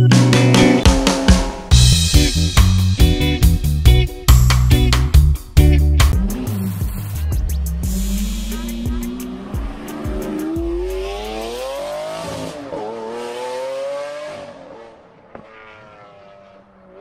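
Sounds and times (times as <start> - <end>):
car engine accelerating hard: 6.0 - 17.0.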